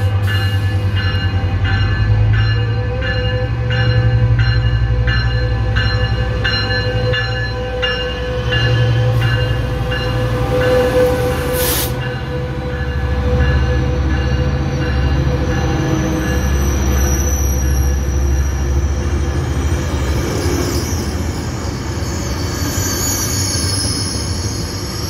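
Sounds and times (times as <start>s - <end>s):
locomotive bell ringing: 0.0s - 20.0s
air hiss: 11.6s - 12.0s.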